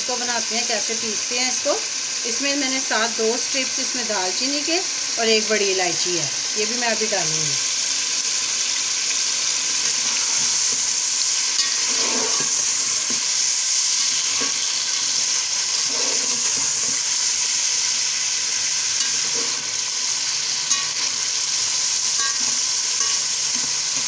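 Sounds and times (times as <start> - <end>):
food sizzling in hot oil: 0.0 - 24.0
spatula scraping a metal pot: 11.6 - 12.7, 15.8 - 16.8.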